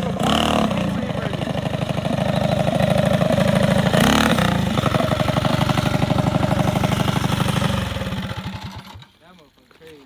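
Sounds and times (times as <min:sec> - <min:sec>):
minibike engine running: 0:00.0 - 0:09.2.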